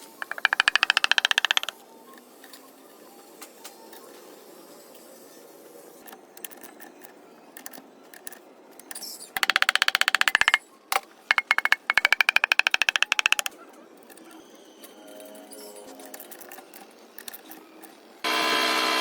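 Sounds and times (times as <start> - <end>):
small machine clattering: 0.0 - 1.8, 9.4 - 10.6, 11.3 - 13.5.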